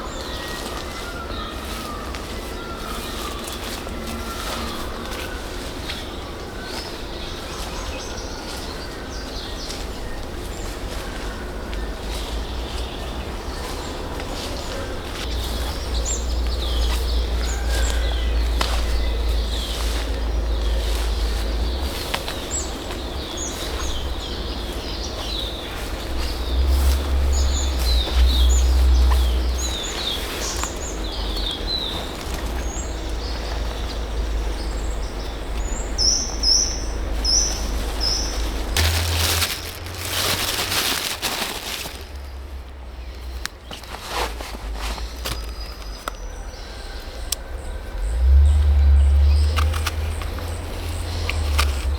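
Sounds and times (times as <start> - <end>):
wild birds chirping: 0.0 - 51.9
loud rustling noise: 37.1 - 42.6, 43.6 - 45.9
low rumble: 47.5 - 51.9.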